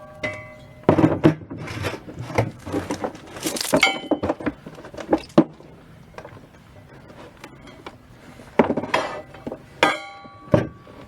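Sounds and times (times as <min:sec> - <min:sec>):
metal tools clinking on metal: 0:02.2 - 0:05.4.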